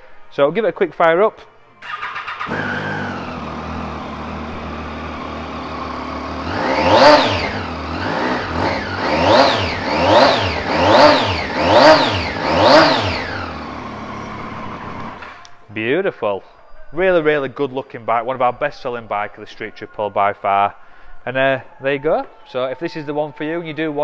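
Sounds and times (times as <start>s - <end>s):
motorcycle engine idling: 1.8s - 15.2s
motorcycle throttle blips: 1.8s - 15.6s.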